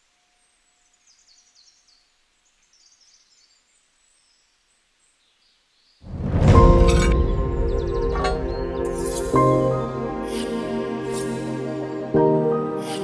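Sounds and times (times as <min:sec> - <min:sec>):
birds chirping: 0:00.5 - 0:10.5.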